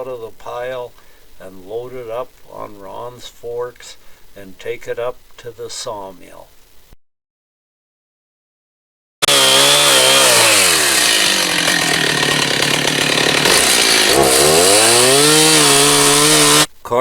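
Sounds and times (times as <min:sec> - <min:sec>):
chainsaw cutting a limb: 0:09.2 - 0:16.7.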